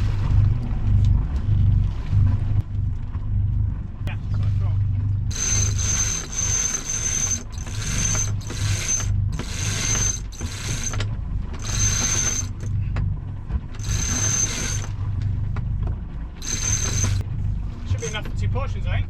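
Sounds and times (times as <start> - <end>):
boat engine humming: 0.0 - 19.0
winch ratcheting: 5.3 - 12.8, 13.6 - 15.1, 16.4 - 17.2.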